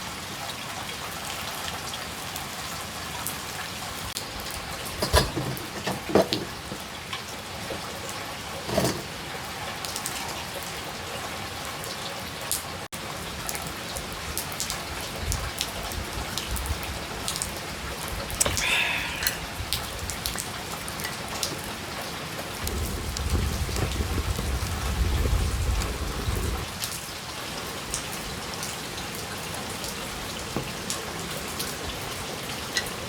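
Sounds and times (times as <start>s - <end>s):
rain pattering on surfaces: 0.0s - 33.0s
knocks and clatters: 4.9s - 6.9s, 8.7s - 9.2s.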